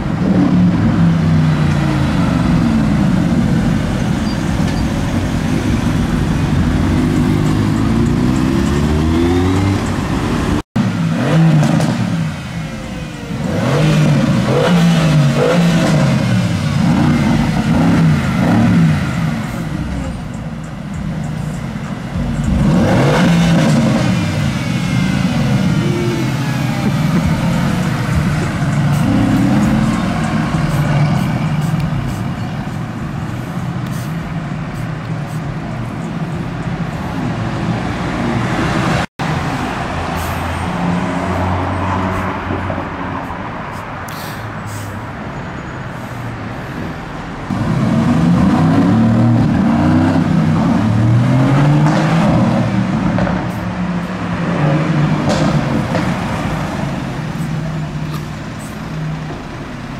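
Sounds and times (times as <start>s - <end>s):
car engines in traffic: 0.0s - 59.9s.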